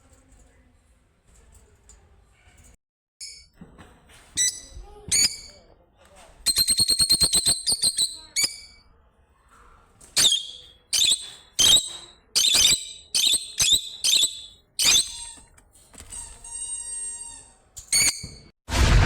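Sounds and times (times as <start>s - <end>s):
bird squeaky calls: 6.5s - 8.8s, 10.2s - 15.5s
bird whistled note: 10.2s - 15.2s.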